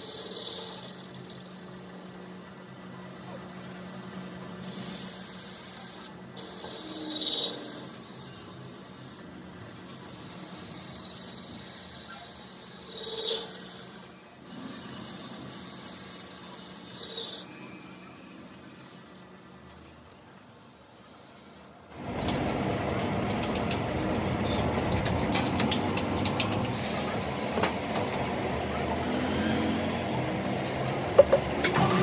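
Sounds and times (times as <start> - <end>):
high-pitched whistling tone: 0.0 - 2.6, 4.6 - 19.3.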